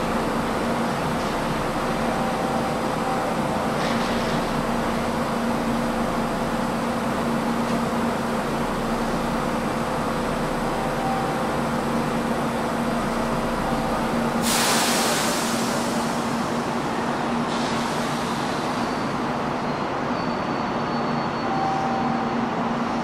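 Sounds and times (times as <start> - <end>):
electric train humming: 0.0 - 19.7
compressed air hiss: 14.4 - 16.2.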